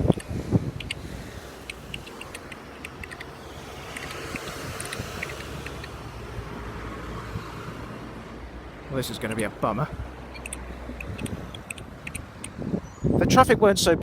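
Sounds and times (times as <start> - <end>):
road traffic passing: 0.0 - 13.3
faint high ticks: 1.6 - 3.3, 10.4 - 12.6.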